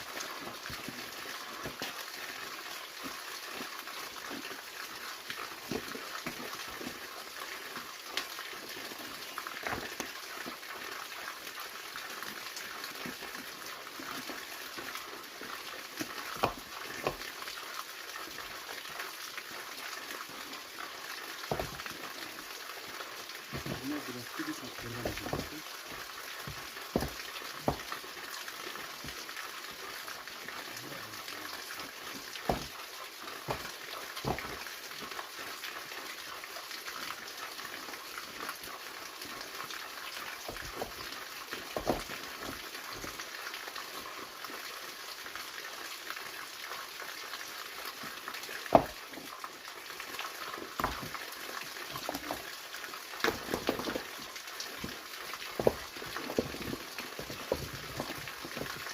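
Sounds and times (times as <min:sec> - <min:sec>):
waterfall rushing: 0:23.4 - 0:26.0.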